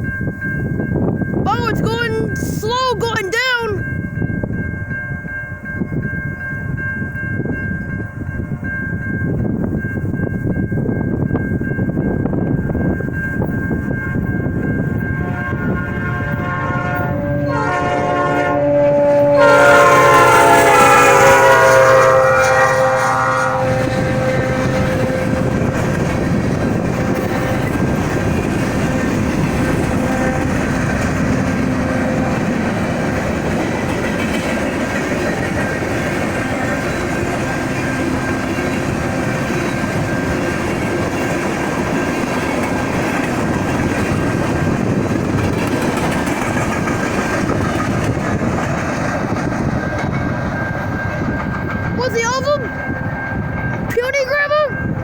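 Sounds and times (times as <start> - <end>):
rail cars rumbling and clacking: 0.0 - 55.0
train horn blowing: 15.1 - 43.0.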